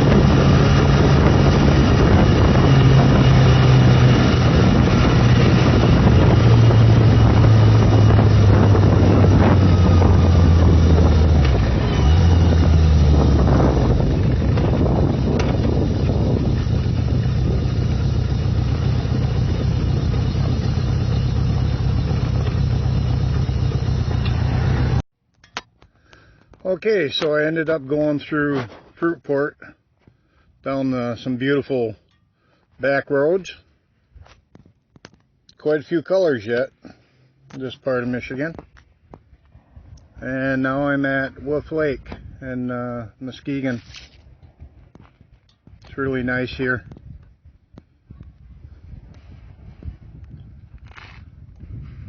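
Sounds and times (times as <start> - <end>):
wind rush: 0.0 - 22.1, 39.0 - 40.3, 44.2 - 45.9, 46.8 - 52.0
motorcycle engine running: 0.0 - 25.0
road noise: 0.0 - 28.3, 32.5 - 52.0.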